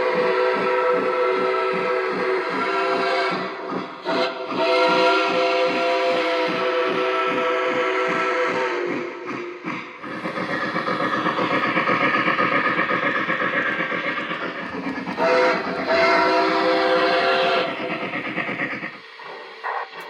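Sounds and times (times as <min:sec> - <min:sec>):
steam whistle: 0:00.0 - 0:09.3, 0:15.2 - 0:18.0
model locomotive chuffing: 0:00.0 - 0:20.0.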